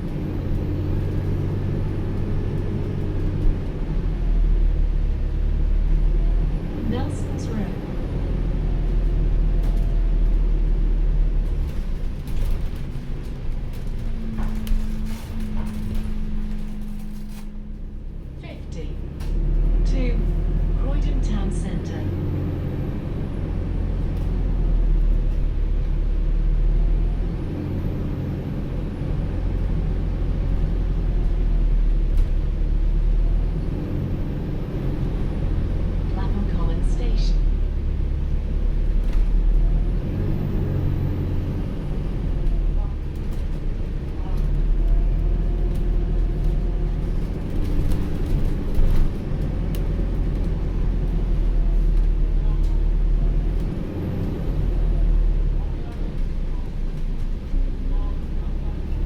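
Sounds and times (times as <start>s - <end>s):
bus drivetrain hum and whine: 0.0s - 59.0s
interior clicks and rattles: 8.8s - 22.0s, 33.8s - 54.8s.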